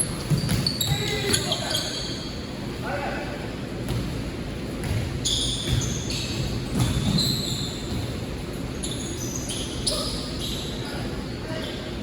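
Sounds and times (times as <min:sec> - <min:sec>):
sneakers squeaking on court: 0:00.0 - 0:02.4, 0:04.8 - 0:12.0
basketball bouncing: 0:04.8 - 0:07.3.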